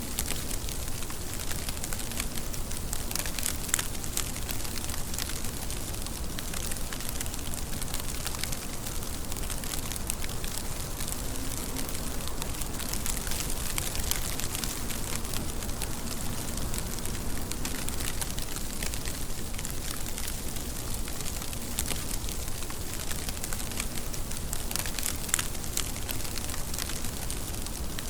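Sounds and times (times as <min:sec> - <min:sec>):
steady rain patter: 0:00.0 - 0:28.0.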